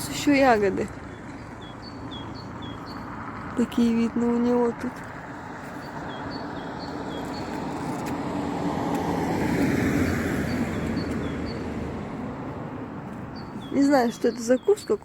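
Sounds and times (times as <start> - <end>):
small bird chirping: 1.1 - 3.9, 5.6 - 8.0, 13.3 - 15.0
car passing by: 4.8 - 13.7.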